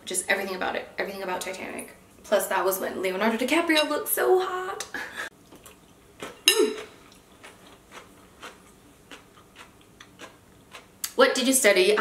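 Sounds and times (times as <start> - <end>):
person chewing food: 5.3 - 11.1.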